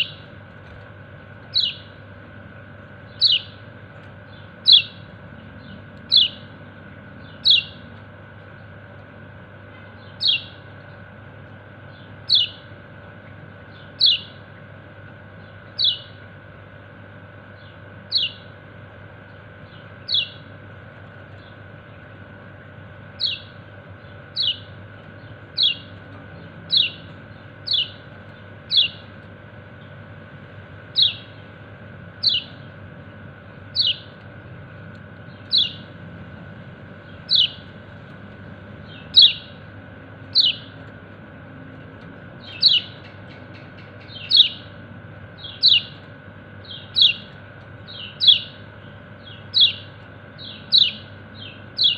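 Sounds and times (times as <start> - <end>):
steady low hum: 0.0 - 51.9
bird chirping call note: 1.5 - 2.0, 3.1 - 3.6, 4.3 - 5.0, 5.6 - 6.5, 12.3 - 12.6, 13.8 - 14.4, 15.8 - 16.2, 18.1 - 18.5, 24.3 - 24.7, 25.5 - 28.0, 31.0 - 31.4, 32.2 - 32.7, 33.7 - 34.1, 35.3 - 35.9, 37.0 - 37.7, 38.9 - 39.6, 40.3 - 40.8, 42.4 - 44.7, 45.4 - 46.0, 46.6 - 47.3, 47.9 - 48.6, 49.2 - 51.9.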